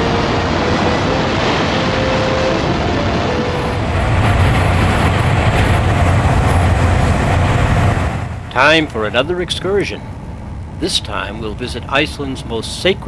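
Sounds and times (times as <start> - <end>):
waterfall roaring: 0.0 - 9.0.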